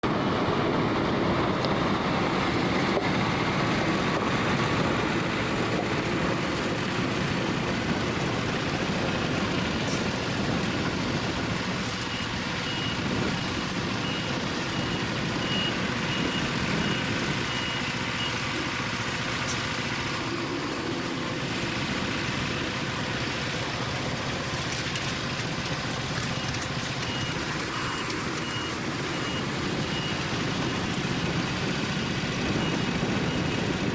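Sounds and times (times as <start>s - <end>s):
truck diesel engine running: 0.0s - 33.9s
reversing alarm beeping: 9.2s - 24.3s, 25.5s - 33.9s.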